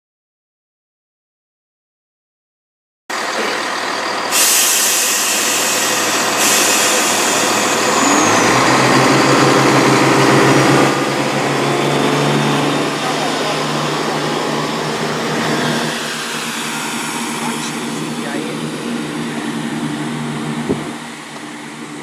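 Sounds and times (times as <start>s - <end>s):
diesel train engines: 3.1s - 22.0s
train air brake hiss: 4.3s - 8.0s.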